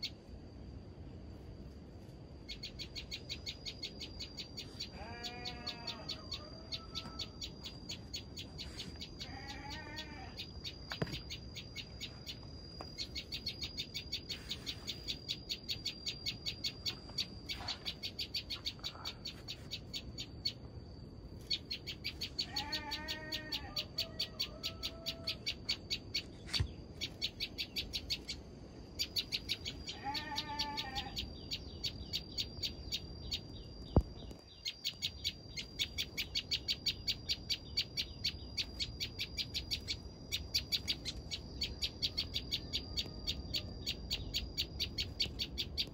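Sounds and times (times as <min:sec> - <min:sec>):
lower wavering animal call: 0:04.9 - 0:07.8, 0:22.0 - 0:25.9, 0:29.3 - 0:32.2.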